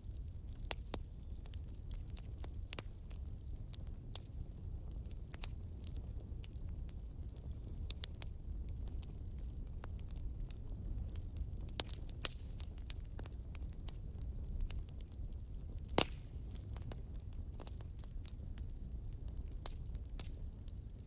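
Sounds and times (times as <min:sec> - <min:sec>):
campfire crackling: 0:00.1 - 0:21.0.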